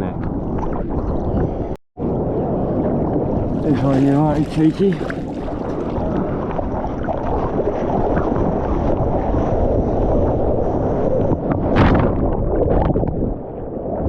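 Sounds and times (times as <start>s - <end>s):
wind buffeting microphone: 0.0s - 14.0s
surf water rushing: 3.3s - 12.6s
water splash: 3.5s - 9.7s.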